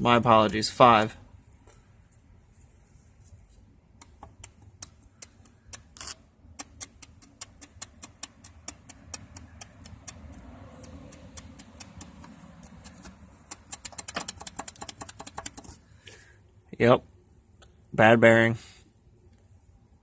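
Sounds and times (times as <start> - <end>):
engine connecting rod clicking: 4.0 - 15.8.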